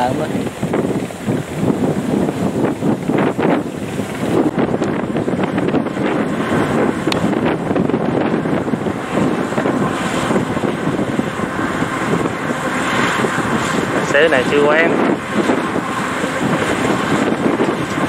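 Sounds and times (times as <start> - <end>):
combine harvester rumble: 0.0 - 18.0
wind buffeting microphone: 0.0 - 18.0.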